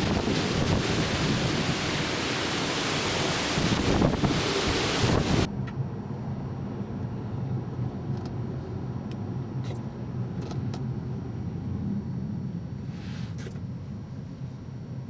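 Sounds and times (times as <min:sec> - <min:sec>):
wind rushing against microphone: 0:00.0 - 0:07.8.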